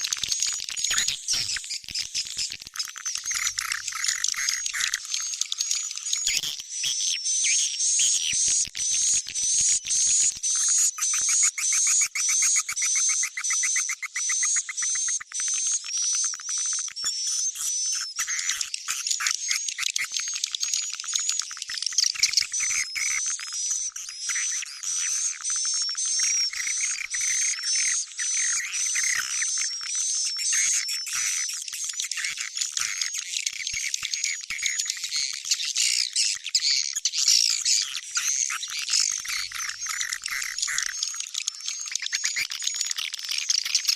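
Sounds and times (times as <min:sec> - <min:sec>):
high buzzy bird chirp: 0:36.0 - 0:42.0.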